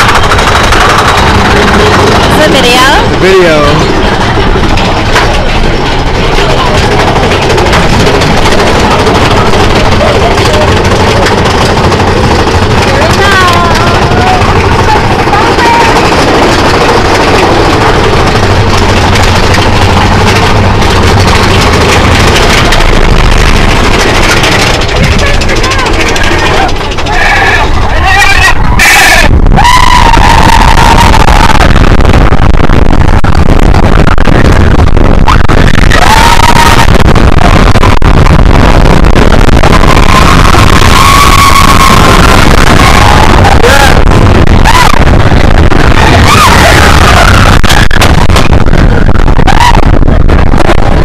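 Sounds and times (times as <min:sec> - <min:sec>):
rapid clattering clicks: 0:00.0 - 0:28.7, 0:36.8 - 0:51.0
roller coaster rumbling on track: 0:00.0 - 0:51.0
riders screaming: 0:23.9 - 0:31.9, 0:35.2 - 0:37.6, 0:39.6 - 0:50.0.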